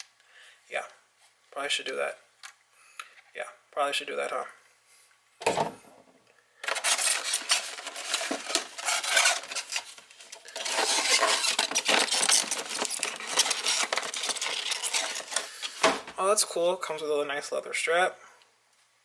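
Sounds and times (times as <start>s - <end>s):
plastic wrapping crinkling: 6.6s - 15.8s
small items clicking and rattling: 6.6s - 15.8s.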